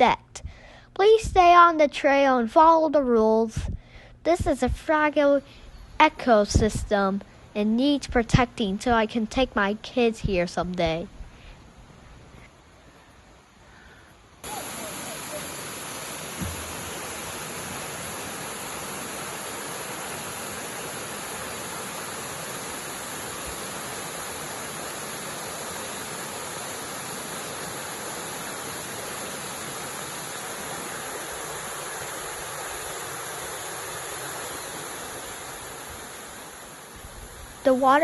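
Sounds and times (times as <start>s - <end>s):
waterfall rushing: 14.4s - 38.0s.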